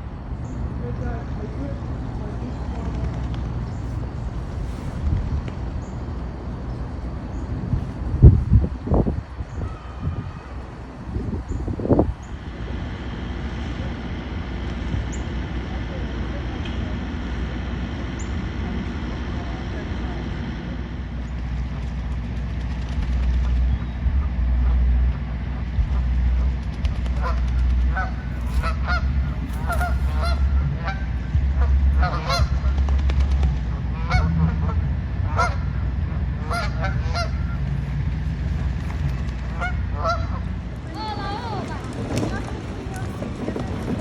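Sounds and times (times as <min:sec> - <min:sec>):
low rumble: 0:17.4 - 0:44.0
birds calling: 0:27.8 - 0:32.8.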